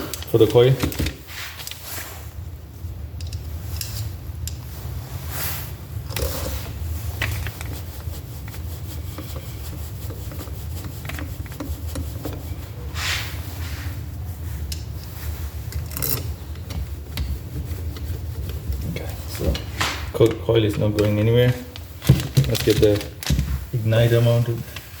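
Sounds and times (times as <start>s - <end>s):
metal parts scraping and clicking: 0.0s - 1.9s, 3.2s - 4.6s, 14.7s - 17.3s.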